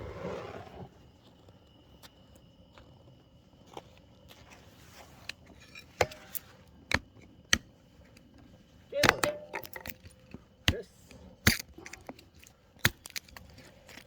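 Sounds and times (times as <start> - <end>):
wood knocking and cracking: 9.0 - 10.8, 11.5 - 14.0.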